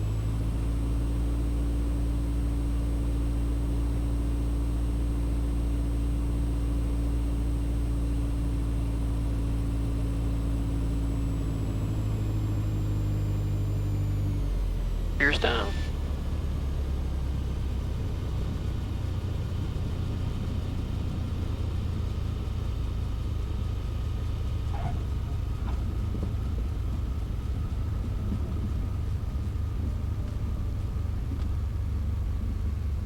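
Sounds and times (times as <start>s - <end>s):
aircraft engine drone: 14.2s - 16.1s
faint high whine: 15.2s - 16.0s.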